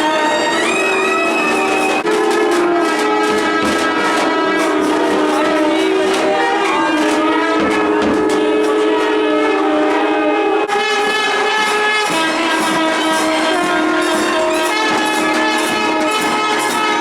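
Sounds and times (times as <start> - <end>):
drum strokes: 0.0 - 10.1, 10.7 - 17.0
double-reed pipe melody: 0.0 - 17.0
steady drone: 10.7 - 17.0.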